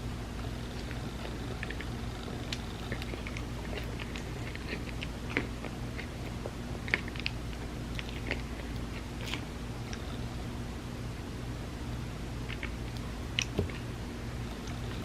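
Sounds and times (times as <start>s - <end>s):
steady low hum: 0.0s - 15.0s
chewing ice cream sandwich: 0.3s - 10.4s, 12.4s - 15.0s
wet mouth clicks: 12.5s - 13.8s.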